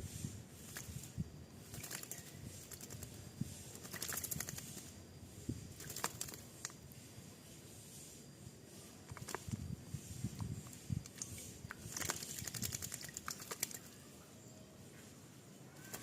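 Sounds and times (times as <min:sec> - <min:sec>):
bird wings flapping and splashing: 0:00.6 - 0:04.9, 0:05.7 - 0:06.5, 0:09.2 - 0:09.5, 0:11.1 - 0:14.0.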